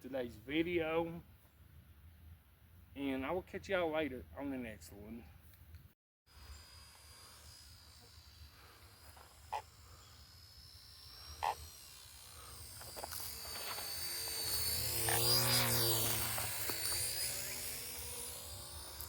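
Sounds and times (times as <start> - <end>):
model helicopter rotor whine: 6.3 - 19.0
short calls: 11.2 - 11.8.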